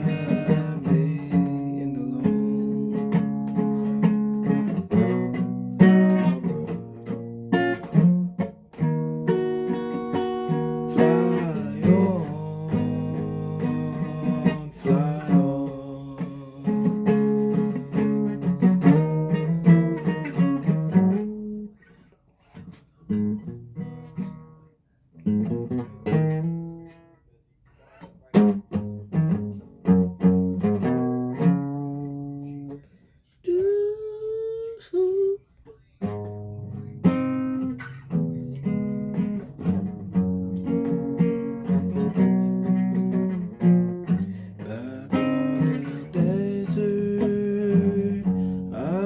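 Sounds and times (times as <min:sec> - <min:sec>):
person singing: 0:00.0 - 0:05.2, 0:05.8 - 0:07.2, 0:10.8 - 0:18.7, 0:33.4 - 0:35.7, 0:43.4 - 0:49.0
guitar strummed and picked: 0:00.0 - 0:27.2, 0:27.8 - 0:32.8, 0:35.9 - 0:49.0
gliding wordless vocal note: 0:11.0 - 0:16.9.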